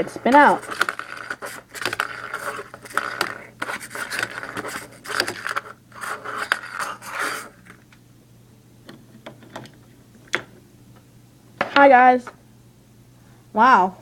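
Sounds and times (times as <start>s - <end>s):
toys scraping on hard surface: 0.0s - 7.7s.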